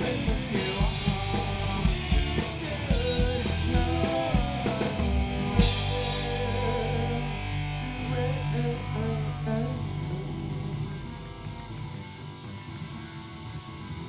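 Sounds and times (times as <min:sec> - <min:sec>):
live rock band final hit: 0:00.0 - 0:07.8
bass guitar ringing out: 0:00.0 - 0:13.1
electric guitar ringing out: 0:00.0 - 0:13.7.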